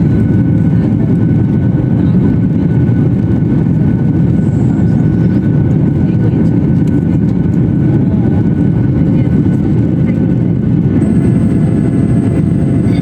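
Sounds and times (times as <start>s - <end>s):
airplane engine low rumble: 0.0s - 13.0s
faint high steady tone: 11.0s - 13.0s.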